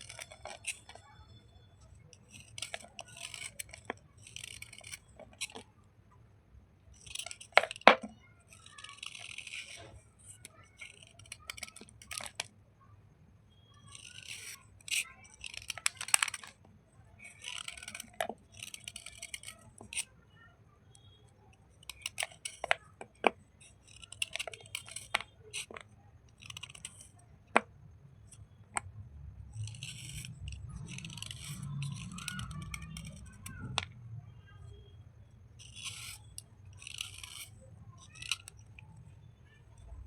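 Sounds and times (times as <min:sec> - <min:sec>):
slate pencils crushed by hand: 0:02.2 - 0:05.6.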